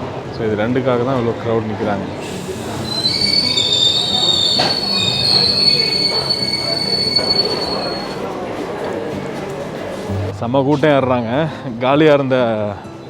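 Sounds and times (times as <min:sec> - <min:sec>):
train brakes squealing: 0:02.2 - 0:08.3
low train rumble: 0:02.2 - 0:08.4.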